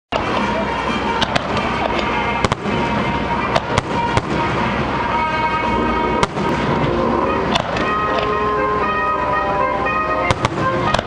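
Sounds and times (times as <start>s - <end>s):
firework shells bursting: 0.1s - 5.6s, 6.2s - 8.4s
background music: 0.1s - 11.0s.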